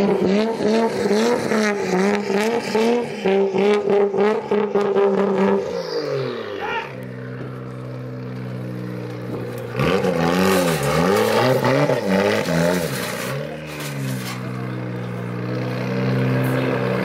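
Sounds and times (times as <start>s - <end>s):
engine revving: 0.0s - 17.0s
car engine idling: 5.5s - 10.0s.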